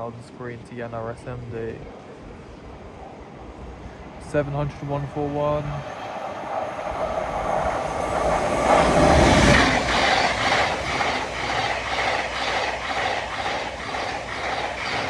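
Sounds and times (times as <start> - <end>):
train wheels clicking: 2.7 - 15.0.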